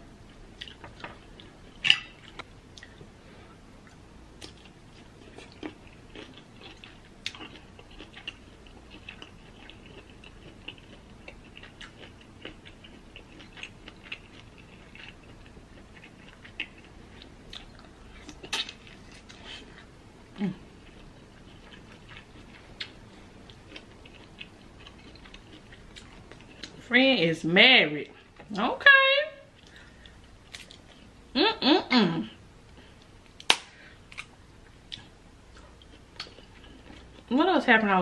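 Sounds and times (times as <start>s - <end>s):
chewing shrimp: 3.8s - 26.9s, 34.1s - 37.4s.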